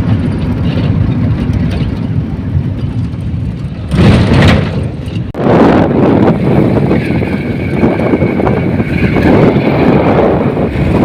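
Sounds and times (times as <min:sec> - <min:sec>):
road noise: 0:00.0 - 0:11.0
rushes of noise: 0:00.0 - 0:11.0
vehicle engine rumble: 0:00.0 - 0:11.0.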